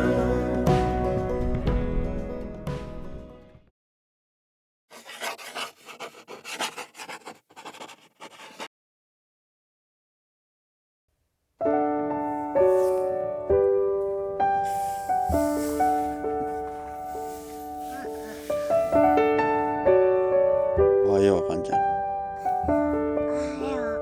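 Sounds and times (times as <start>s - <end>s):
piano music: 0.0s - 3.7s, 11.6s - 24.0s
rubbing and scraping: 4.9s - 8.7s.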